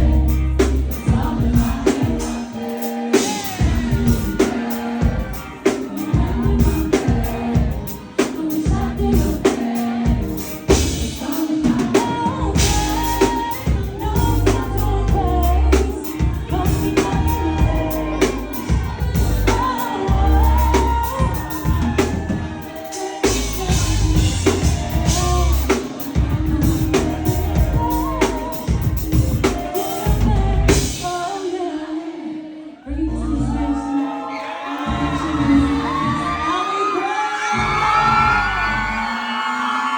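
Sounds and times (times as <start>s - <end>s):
pop backing track with kick drum: 0.0s - 31.2s
woman singing: 0.0s - 37.6s.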